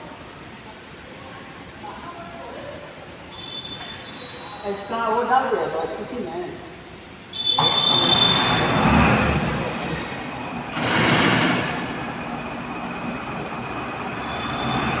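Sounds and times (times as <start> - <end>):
furnace blower and flame rushing: 7.6 - 15.0.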